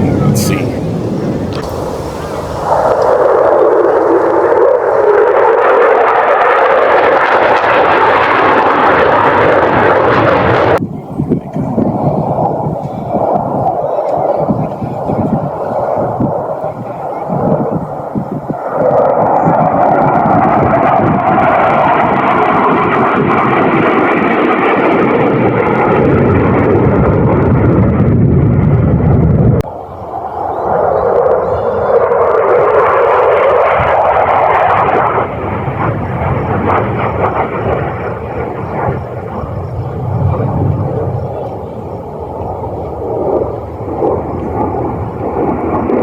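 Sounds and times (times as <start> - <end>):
fighter jet flying past: 0.0 - 10.8, 11.4 - 46.0
low rumble: 0.0 - 13.8, 25.4 - 34.3, 35.1 - 46.0.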